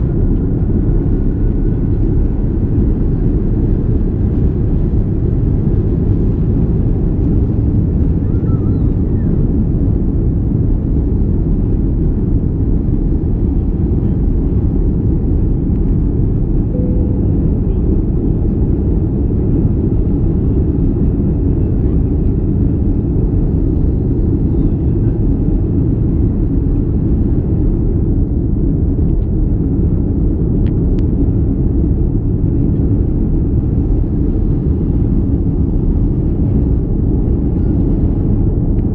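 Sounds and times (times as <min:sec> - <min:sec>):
jet engine cabin rumble: 0:00.0 - 0:38.9.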